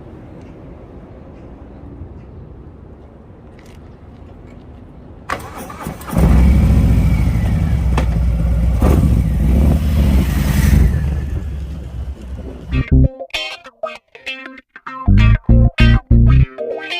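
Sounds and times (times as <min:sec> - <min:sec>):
motorcycle starter engaging: 0:05.3 - 0:08.3
motorcycle engine running deep: 0:06.2 - 0:12.9.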